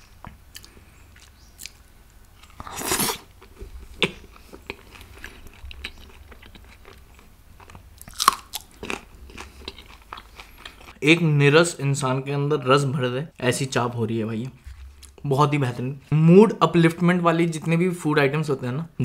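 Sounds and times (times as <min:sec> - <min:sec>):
person chewing food: 0:00.2 - 0:11.0, 0:14.6 - 0:15.2.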